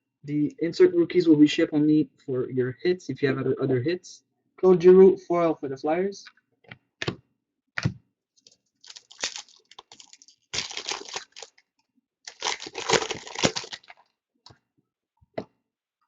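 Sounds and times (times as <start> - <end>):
card wrappers crinkling and tearing: 8.8 - 11.6, 12.3 - 14.1.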